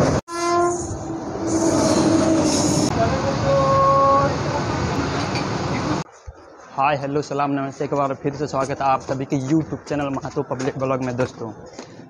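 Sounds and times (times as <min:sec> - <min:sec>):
rumble and clatter of moving train: 0:00.0 - 0:06.1
train horn: 0:00.3 - 0:04.4.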